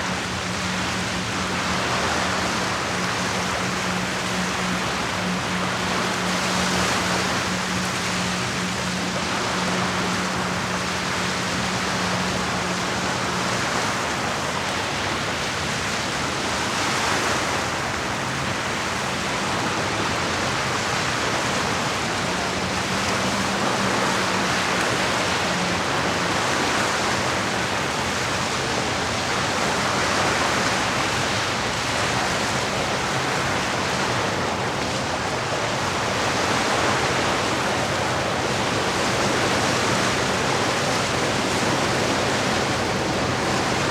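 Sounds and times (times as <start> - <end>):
lake water rushing against shore: 0.0 - 43.9.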